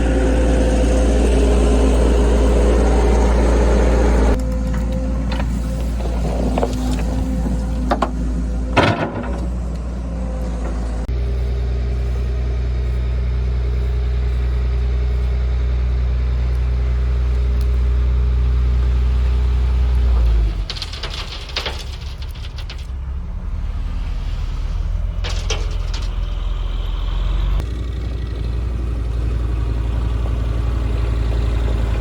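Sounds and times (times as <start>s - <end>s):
tractor engine running: 0.0s - 32.0s
sharp knocks and rattles: 4.3s - 9.9s, 20.0s - 27.2s.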